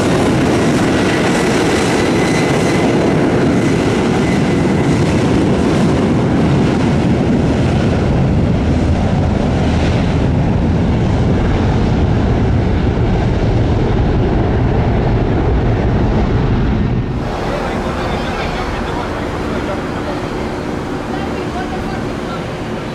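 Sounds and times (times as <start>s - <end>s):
jet engines roaring: 0.0s - 22.9s
wind buffeting microphone: 0.0s - 22.9s.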